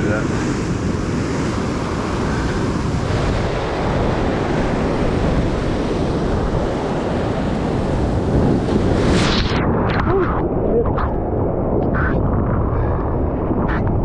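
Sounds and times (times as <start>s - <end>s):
ocean waves and surf: 0.0s - 14.0s
wind buffeting microphone: 0.0s - 14.0s.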